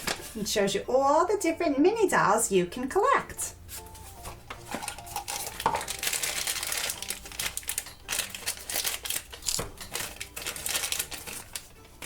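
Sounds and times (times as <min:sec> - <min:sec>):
paper and plastic wrapping crinkling: 0:00.0 - 0:00.5, 0:03.7 - 0:12.0.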